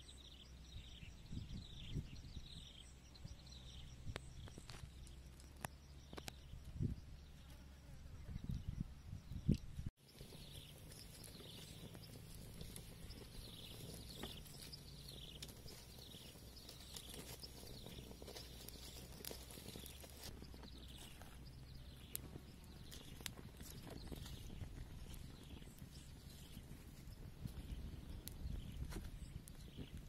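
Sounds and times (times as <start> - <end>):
bird chirping: 0.0 - 30.0
twig fire crackling: 10.0 - 30.0.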